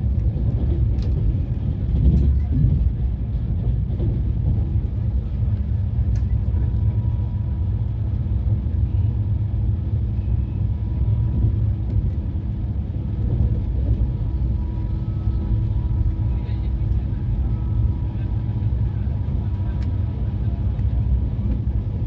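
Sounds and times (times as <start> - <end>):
passenger train rumbling: 0.0 - 22.0
faint steady tones: 5.4 - 21.6.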